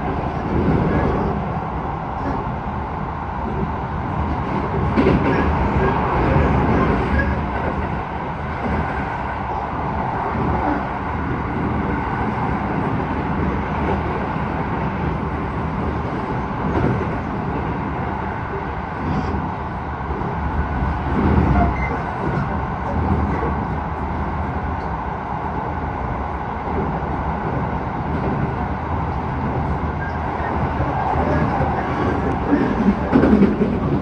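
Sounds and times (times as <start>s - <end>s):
train wheels rumbling on rail: 0.0s - 34.0s.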